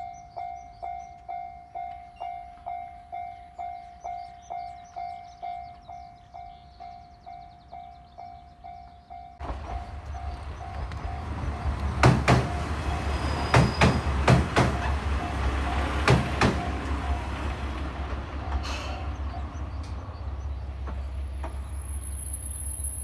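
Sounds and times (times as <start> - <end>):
train rumble: 8.6 - 23.0
train wheels clacking on rail joints: 9.4 - 21.9.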